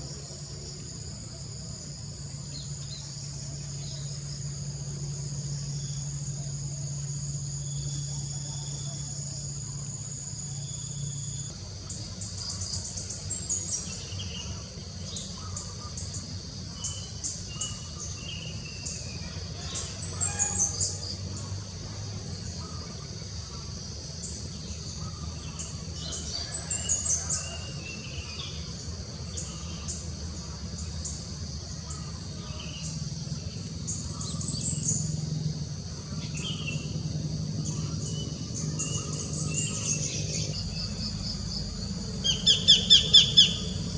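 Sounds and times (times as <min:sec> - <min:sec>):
high insect chorus: 0:00.0 - 0:43.9
birds calling: 0:12.2 - 0:21.8, 0:22.4 - 0:43.9.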